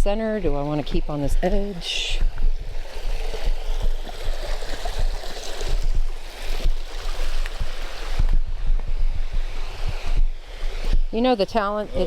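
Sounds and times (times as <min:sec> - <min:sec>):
microphone thumps and rumbling: 0:00.0 - 0:12.0
creek and waterfall rushing: 0:02.7 - 0:08.4.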